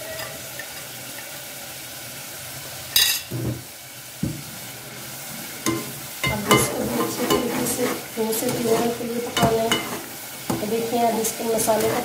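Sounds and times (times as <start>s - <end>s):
sauce sizzling in oil: 0.0s - 12.0s
spatula scraping pot: 5.6s - 10.7s, 11.6s - 12.0s.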